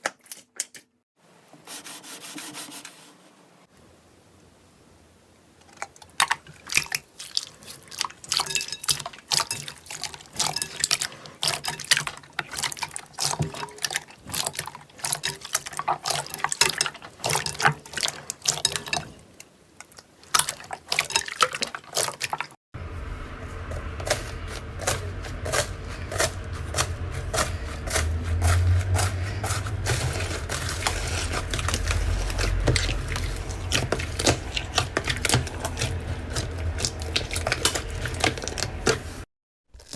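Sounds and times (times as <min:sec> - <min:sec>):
low rumble: 0:22.8 - 0:39.2.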